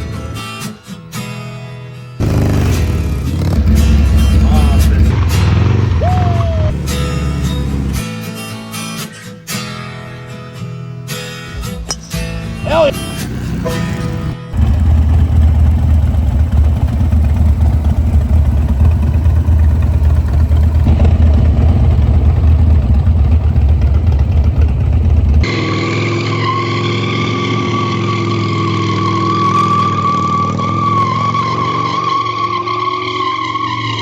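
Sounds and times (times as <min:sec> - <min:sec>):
motorcycle engine rumbling: 0:02.2 - 0:08.0, 0:11.5 - 0:25.8
tire squeal: 0:02.2 - 0:08.0, 0:25.0 - 0:34.0.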